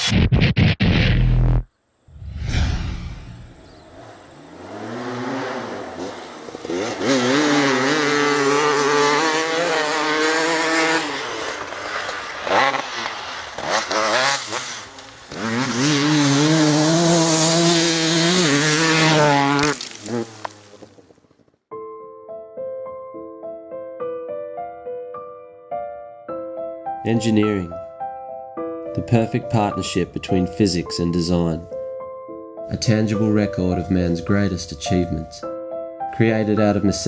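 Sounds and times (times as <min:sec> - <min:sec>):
two-stroke engine revving: 0:04.0 - 0:20.8.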